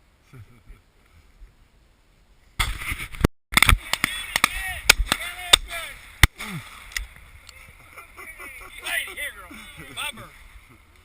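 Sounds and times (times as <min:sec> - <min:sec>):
sharp cracks and knocks: 0:02.6 - 0:07.1.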